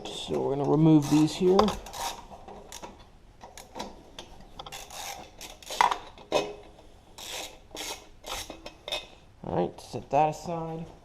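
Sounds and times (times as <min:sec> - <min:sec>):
ratchet wrench rasping: 0:01.0 - 0:02.8, 0:04.7 - 0:05.9, 0:07.2 - 0:08.6.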